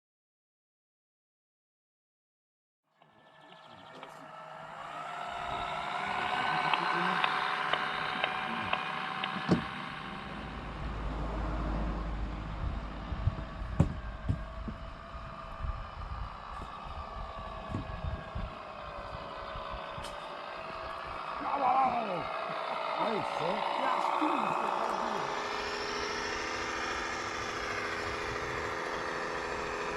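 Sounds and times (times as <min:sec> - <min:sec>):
toy truck motor hum: 0:02.9 - 0:29.9
sharp knocks: 0:07.8 - 0:09.8, 0:13.8 - 0:14.8.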